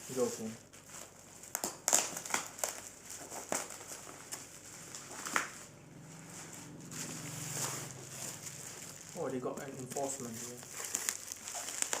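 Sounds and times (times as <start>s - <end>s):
cardboard box crinkling: 0.2s - 5.7s, 6.3s - 12.0s
sharp scrapes and crackles: 1.9s - 12.0s.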